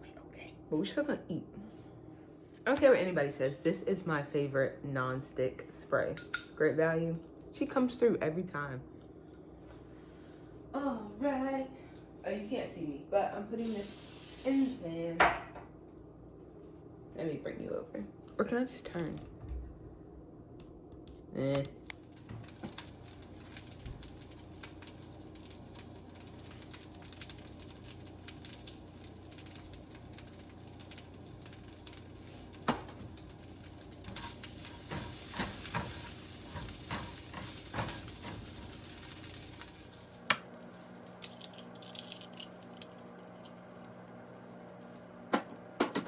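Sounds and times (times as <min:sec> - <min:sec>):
food sizzling in a frying pan: 0:13.6 - 0:15.0, 0:21.9 - 0:46.0.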